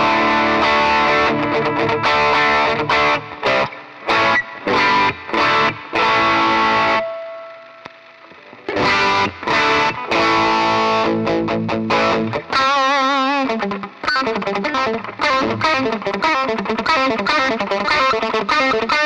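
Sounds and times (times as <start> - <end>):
distorted electric guitar: 0.0 - 19.0.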